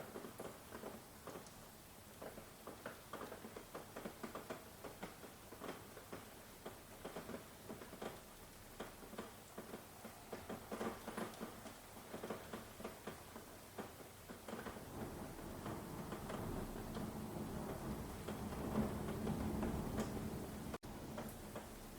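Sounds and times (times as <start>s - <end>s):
faint rain hiss: 0.0s - 21.9s
raindrops tapping: 0.0s - 21.9s.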